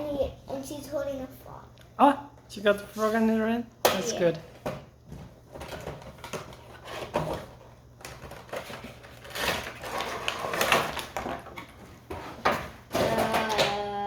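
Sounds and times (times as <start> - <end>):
packaging rustling: 8.0 - 11.9.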